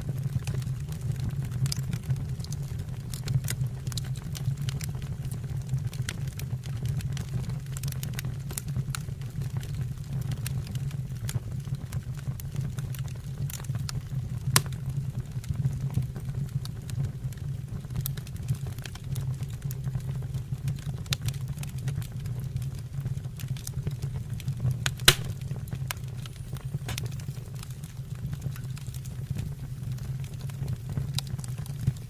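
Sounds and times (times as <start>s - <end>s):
low rumble of flames: 0.0s - 32.0s
fire crackling: 0.1s - 32.0s
sharp pops of burning wood: 13.5s - 14.9s, 23.4s - 32.0s.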